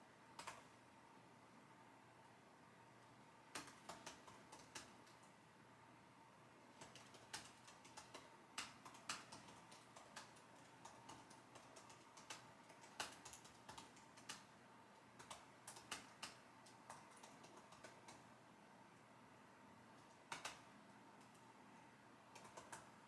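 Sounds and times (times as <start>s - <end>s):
computer keyboard typing: 0.4s - 0.7s, 3.5s - 5.3s, 6.7s - 18.3s, 20.0s - 21.6s, 22.3s - 23.0s.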